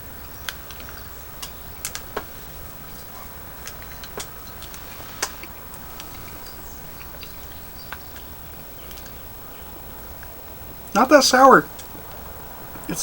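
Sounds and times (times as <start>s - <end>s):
candy clicking and crackling: 0.3s - 7.3s.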